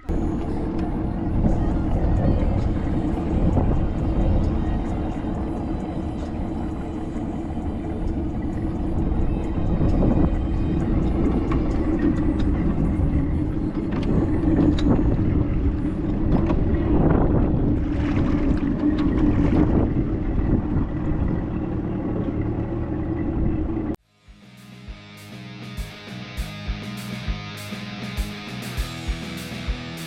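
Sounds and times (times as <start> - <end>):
boat motor running: 0.0 - 24.0
wind on microphone: 0.0 - 24.0
guitar music: 24.3 - 30.0.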